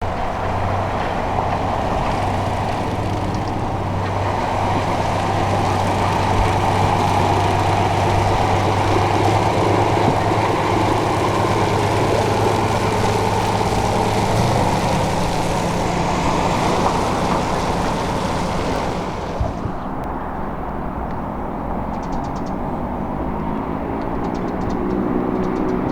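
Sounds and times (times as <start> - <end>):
truck engine humming: 0.0 - 20.2
constant rushing noise: 0.0 - 25.9.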